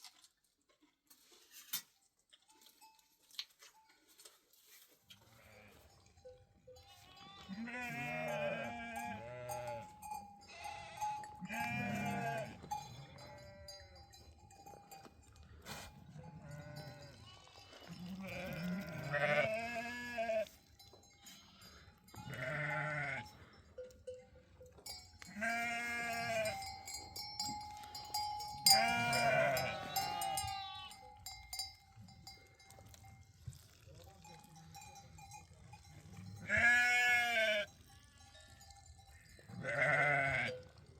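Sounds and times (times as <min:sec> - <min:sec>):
livestock bells clinking: 0:02.5 - 0:04.4, 0:05.5 - 0:40.9
sheep and goats bleating: 0:05.2 - 0:06.0, 0:06.7 - 0:14.2, 0:15.7 - 0:23.6, 0:25.2 - 0:31.6, 0:34.6 - 0:40.8.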